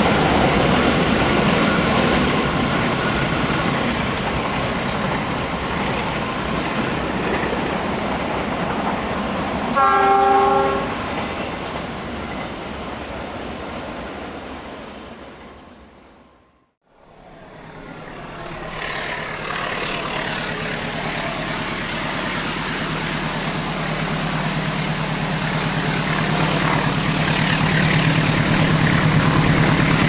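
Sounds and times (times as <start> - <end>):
wheels clattering on rail: 0.0 - 14.5
diesel train rumble: 0.0 - 15.8, 16.9 - 30.0
locomotive horn blast: 9.8 - 11.1.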